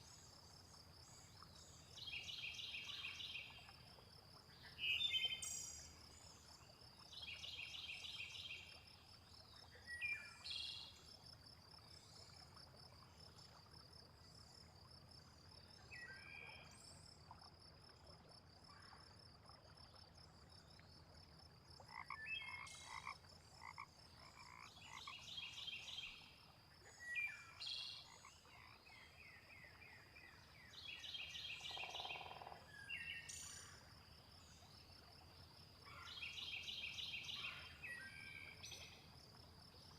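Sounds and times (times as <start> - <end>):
frogs croaking: 21.3 - 39.9.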